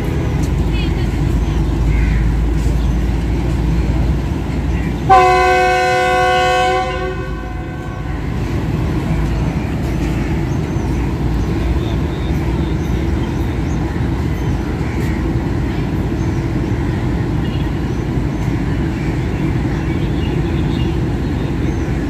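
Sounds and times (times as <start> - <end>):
locomotive horn chord: 0.0 - 0.7, 4.9 - 9.0
train rumbling: 0.0 - 22.0.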